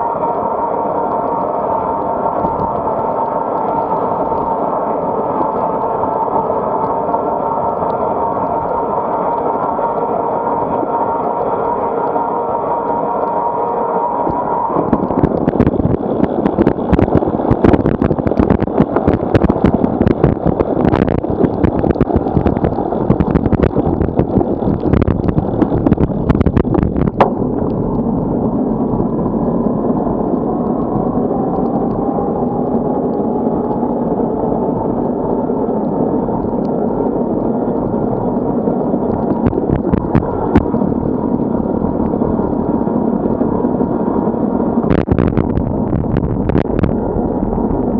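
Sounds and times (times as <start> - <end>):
sharp crackles and pops: 2.2 - 12.2, 14.2 - 47.9
wind buffeting microphone: 14.2 - 47.9.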